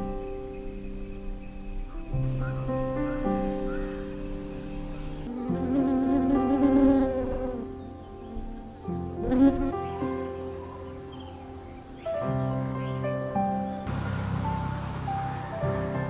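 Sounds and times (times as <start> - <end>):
insect buzzing: 0.0 - 12.6
soft background music: 0.0 - 16.0.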